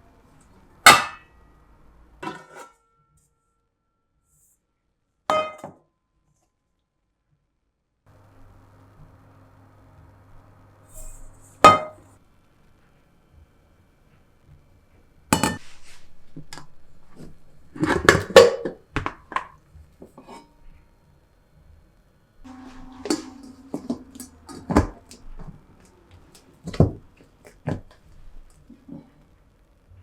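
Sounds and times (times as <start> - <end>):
kitchenware clinking and knocking: 2.2 - 2.7, 15.4 - 15.6, 22.5 - 27.9.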